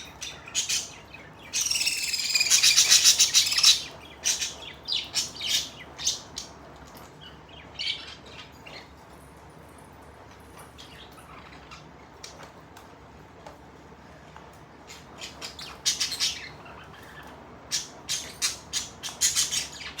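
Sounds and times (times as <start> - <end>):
budgerigars chirping and squawking: 0.0 - 6.6, 14.9 - 20.0.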